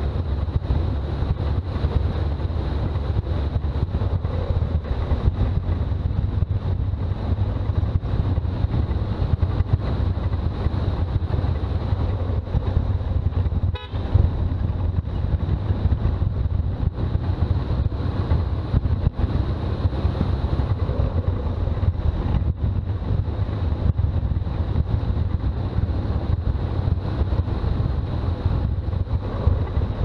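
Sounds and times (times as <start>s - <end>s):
road noise: 0.0s - 30.0s
vehicle engine rumble: 0.0s - 30.0s.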